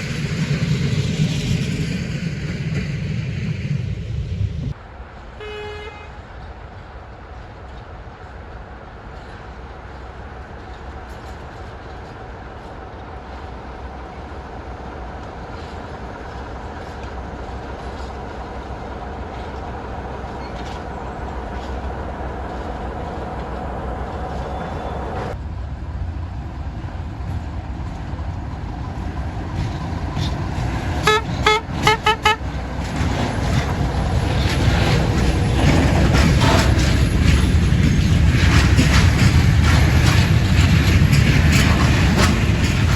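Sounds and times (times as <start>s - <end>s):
train rumble: 0.0s - 42.9s
locomotive horn blast: 5.4s - 6.2s, 31.0s - 32.6s
short horn toots: 31.0s - 32.4s.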